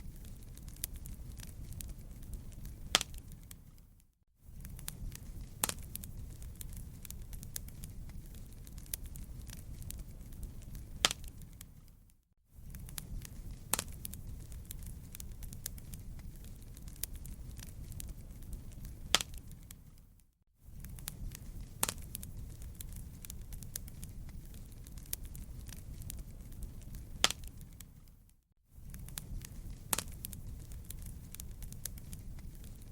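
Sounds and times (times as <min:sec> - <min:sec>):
wood fire crackling: 0:00.0 - 0:32.9.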